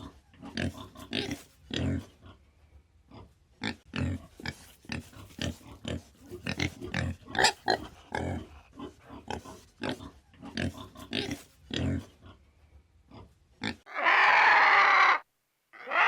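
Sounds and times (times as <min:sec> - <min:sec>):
farm animals calling: 0:06.4 - 0:12.0, 0:13.6 - 0:15.2, 0:15.8 - 0:16.0.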